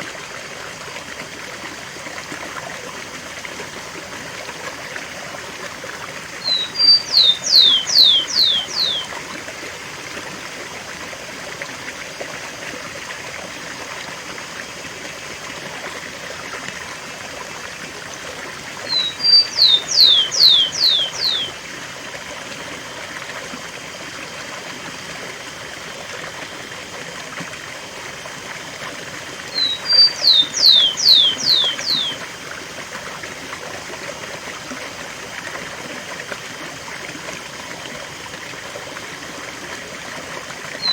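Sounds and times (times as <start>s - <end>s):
sparrow singing: 6.4s - 9.1s, 18.9s - 21.6s, 29.5s - 32.2s
waterfall rushing: 29.5s - 32.2s.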